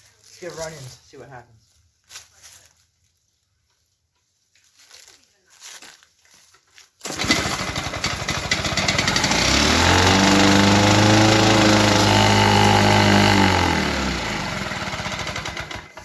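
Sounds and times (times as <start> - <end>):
push mower engine: 7.0 - 16.0.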